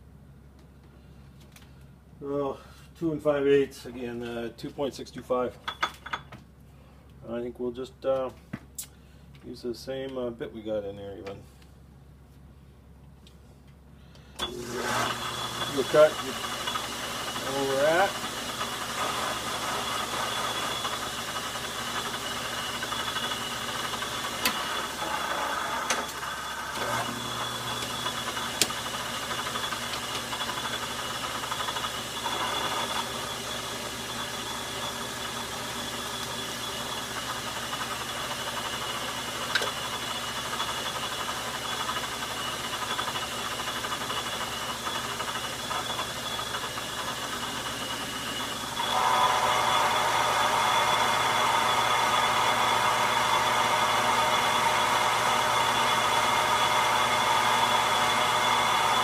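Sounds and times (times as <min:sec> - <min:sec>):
metal lathe cutting: 0:14.4 - 0:59.0.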